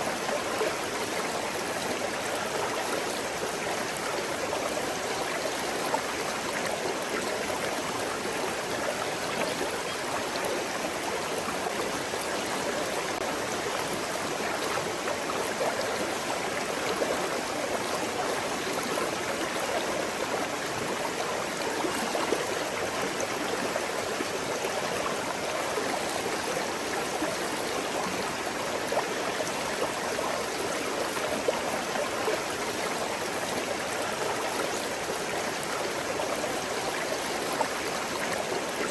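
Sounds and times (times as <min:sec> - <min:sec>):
stream babbling over stones: 0:00.0 - 0:38.9.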